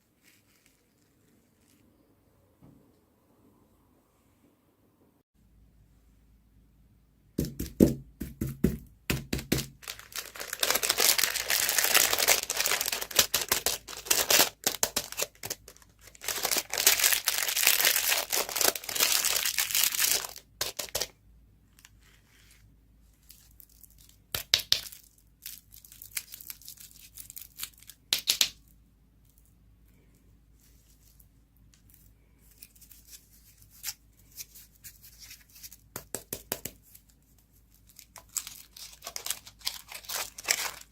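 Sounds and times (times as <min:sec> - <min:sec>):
candy wrapper tearing and crinkling: 0:09.5 - 0:21.1, 0:23.3 - 0:28.6, 0:37.7 - 0:40.9.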